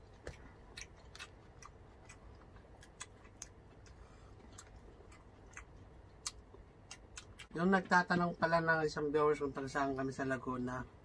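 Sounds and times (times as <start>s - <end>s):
people chewing food: 0.0s - 8.0s.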